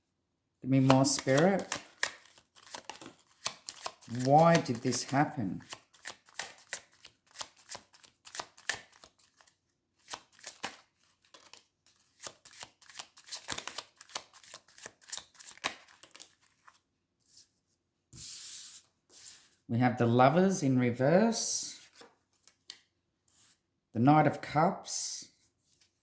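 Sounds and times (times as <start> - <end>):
cards being shuffled: 0.8 - 17.5.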